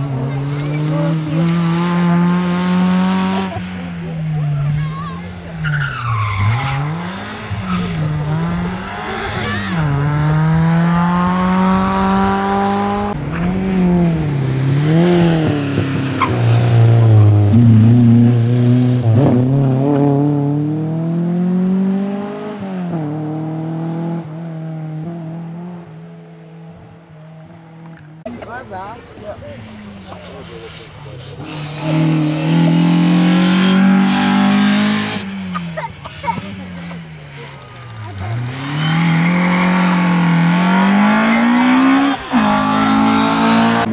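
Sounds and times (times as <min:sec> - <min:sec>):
rally car engine revving: 0:00.0 - 0:28.5, 0:29.3 - 0:43.9
tyres squealing: 0:05.1 - 0:09.9, 0:33.8 - 0:43.9.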